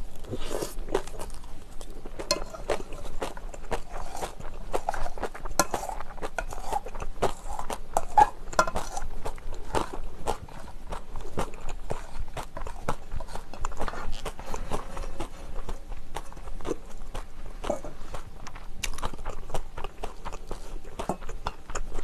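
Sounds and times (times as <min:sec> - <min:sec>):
wet chewing: 0:00.0 - 0:22.0
spoon scraping a steel bowl: 0:02.2 - 0:03.2, 0:03.8 - 0:09.1.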